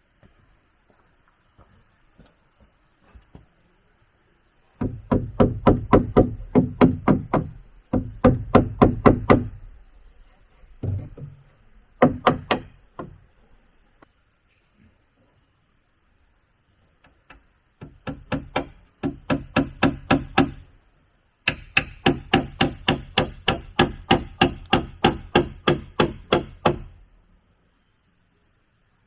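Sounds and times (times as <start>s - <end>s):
hard strikes on wood: 4.8s - 9.6s, 12.0s - 13.2s, 17.3s - 20.7s, 21.5s - 27.0s.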